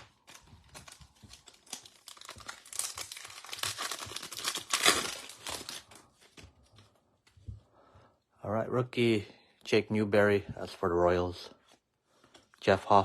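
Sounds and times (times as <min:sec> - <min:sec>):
card pack wrappers tearing: 0:00.0 - 0:06.1.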